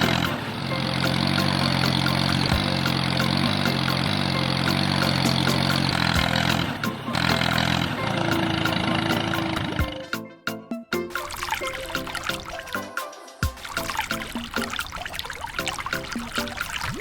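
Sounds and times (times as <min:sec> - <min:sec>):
engine running with rattle: 0:00.0 - 0:10.1.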